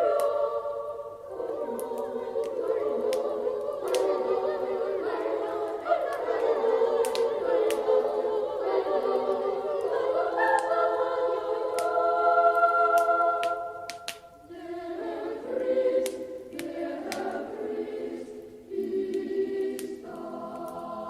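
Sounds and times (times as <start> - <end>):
wood fire crackling: 0.0 - 14.6, 15.4 - 21.0
choir singing: 0.0 - 21.0.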